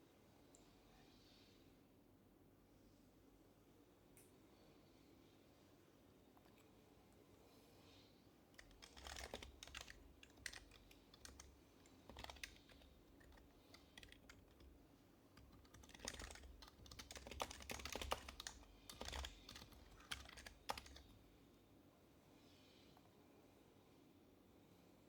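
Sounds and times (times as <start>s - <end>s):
soft keyboard typing: 8.6s - 21.3s.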